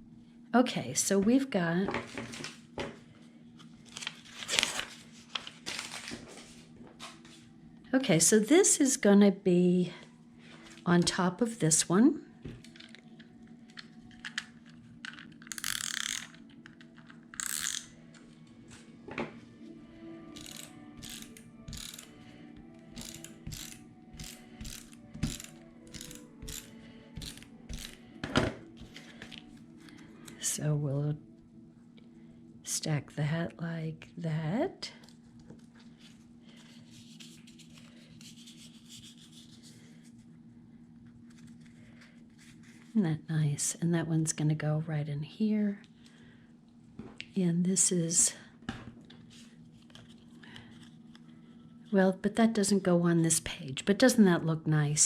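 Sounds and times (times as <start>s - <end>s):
steady low hum: 6.3s - 55.0s
adhesive tape runner clicking: 15.5s - 16.4s, 17.4s - 17.9s, 20.4s - 22.1s, 23.0s - 28.0s.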